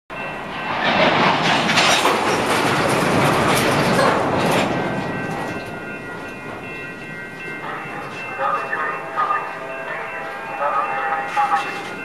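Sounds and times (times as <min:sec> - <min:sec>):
train wheels clacking over rail joints: 0:00.7 - 0:06.4.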